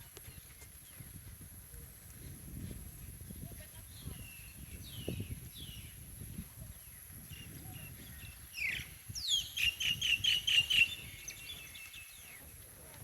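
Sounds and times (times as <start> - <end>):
bird singing: 3.8 - 6.0, 6.7 - 12.6.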